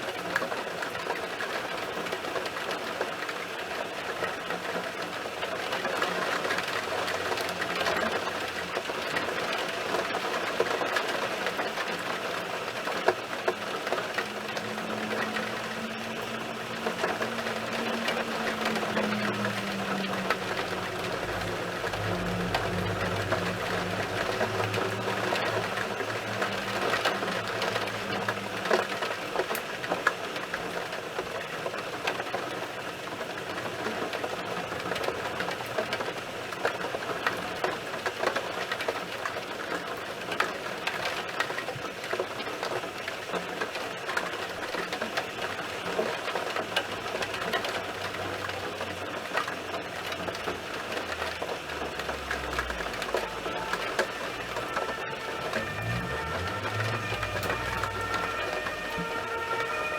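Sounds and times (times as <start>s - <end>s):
heavy rain pattering: 0.0s - 59.9s
low hum: 13.3s - 29.7s, 52.2s - 59.9s.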